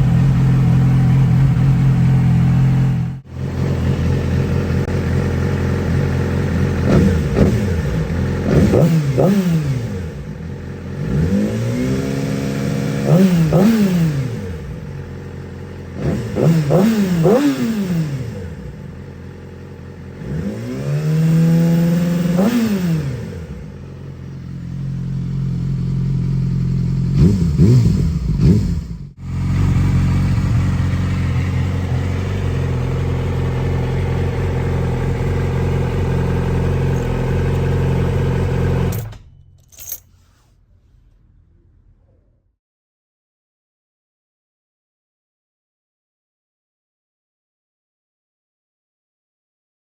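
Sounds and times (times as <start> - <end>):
motorcycle engine revving and idling: 0.0 - 40.0.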